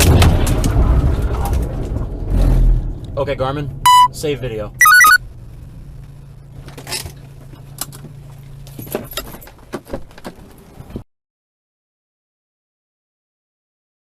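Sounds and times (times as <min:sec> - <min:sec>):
engine and road hum: 0:00.0 - 0:11.0.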